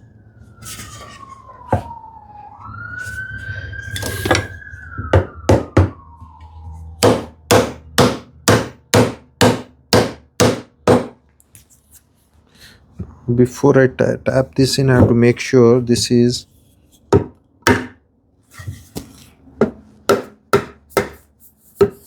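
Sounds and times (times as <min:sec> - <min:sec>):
faint siren wailing: 0:00.0 - 0:09.0
hammer tapping wood joints: 0:07.0 - 0:11.2.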